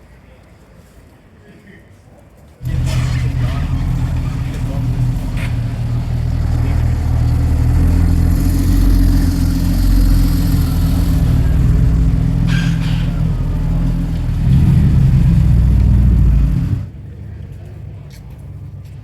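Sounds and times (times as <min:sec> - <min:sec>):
car engine running: 0:02.6 - 0:17.6.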